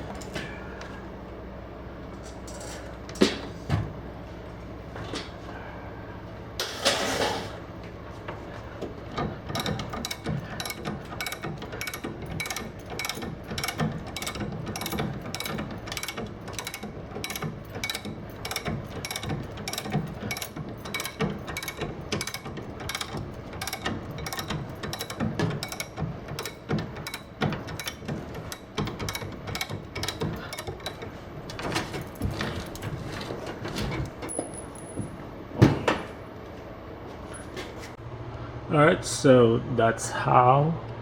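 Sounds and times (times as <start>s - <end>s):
sharp mechanical clicking: 9.4s - 32.2s.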